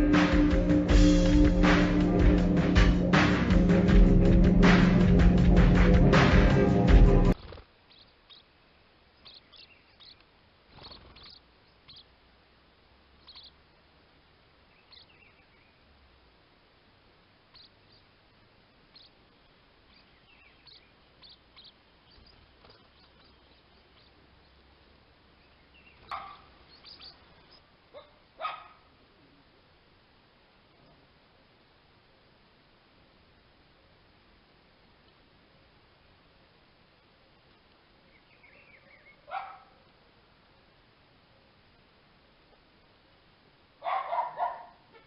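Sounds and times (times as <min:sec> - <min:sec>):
faint bird chirps: 0:07.3 - 0:12.2, 0:13.0 - 0:13.7, 0:14.5 - 0:15.9, 0:17.3 - 0:29.4, 0:30.6 - 0:31.1, 0:37.5 - 0:40.0
short bird calls: 0:07.4 - 0:12.2, 0:13.2 - 0:13.6, 0:14.7 - 0:15.8, 0:17.4 - 0:18.1, 0:18.8 - 0:19.2, 0:19.8 - 0:24.6, 0:25.4 - 0:28.9, 0:38.1 - 0:39.9.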